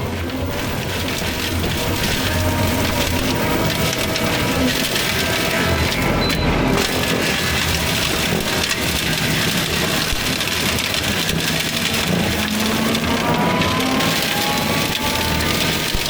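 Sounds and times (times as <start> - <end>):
machine engine under load: 0.0 - 16.0
mulcher grinding wood: 0.0 - 16.0.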